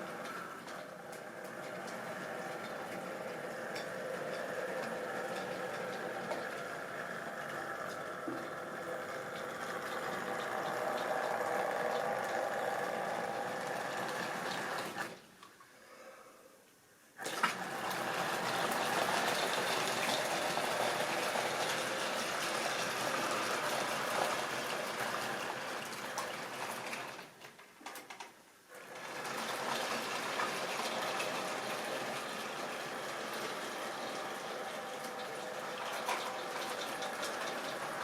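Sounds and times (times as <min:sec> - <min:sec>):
wheels clicking over rails: 0:00.0 - 0:15.2, 0:17.6 - 0:38.0
model train motor rattling: 0:17.8 - 0:27.5, 0:28.1 - 0:38.0.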